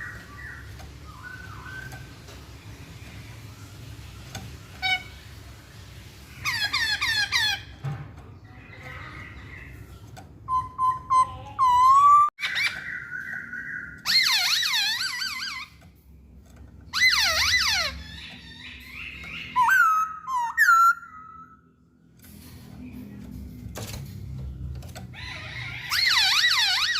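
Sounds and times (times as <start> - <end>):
bird singing whistled phrases: 10.5 - 14.1, 19.4 - 21.6.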